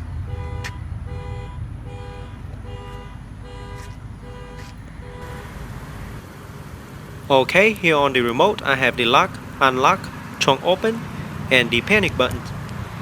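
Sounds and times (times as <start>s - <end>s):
car horn two-tone blasts: 0.2s - 5.6s.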